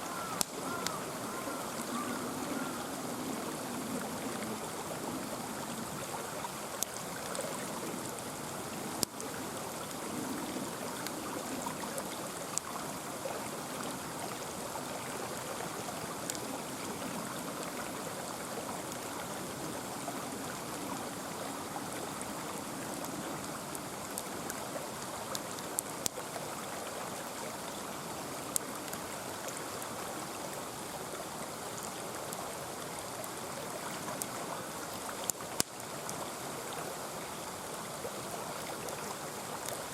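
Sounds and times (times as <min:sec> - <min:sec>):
mountain stream flowing: 0:00.0 - 0:39.9
campfire popping and crackling: 0:00.2 - 0:01.0, 0:06.4 - 0:12.8, 0:16.0 - 0:18.0, 0:22.8 - 0:26.3, 0:33.1 - 0:36.2.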